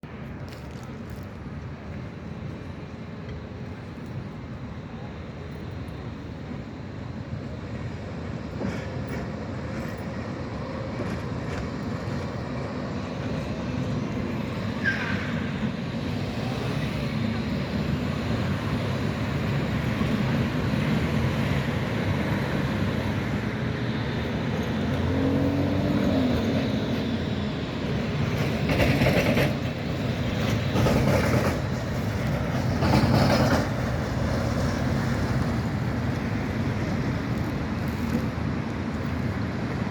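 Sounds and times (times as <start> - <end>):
tram running on track: 0.0 - 39.9
tram wheel squeal: 7.8 - 39.8
loud knocks from tram wheels: 28.2 - 34.0.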